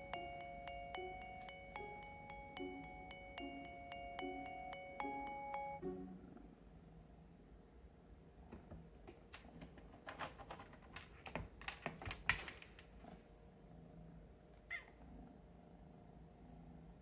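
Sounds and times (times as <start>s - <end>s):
kittens clicking and tapping: 8.6s - 13.0s.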